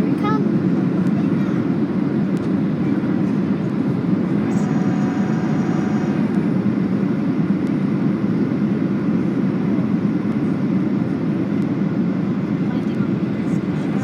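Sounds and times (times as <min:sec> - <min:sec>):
airplane cabin roar: 0:00.0 - 0:14.0
faint high whine: 0:04.2 - 0:07.4, 0:12.8 - 0:14.0.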